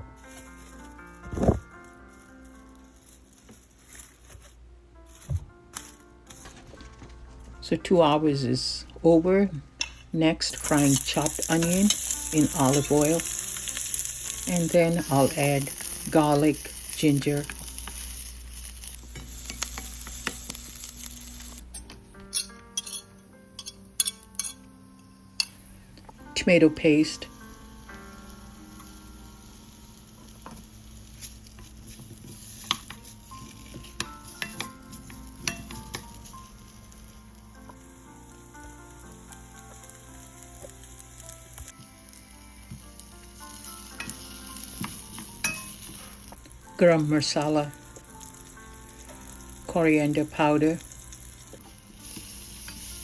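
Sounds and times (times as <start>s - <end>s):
soft background music: 0.0s - 53.0s
vegetables sizzling in oil: 10.4s - 21.7s, 26.4s - 53.0s
utensils clinking: 21.7s - 26.0s.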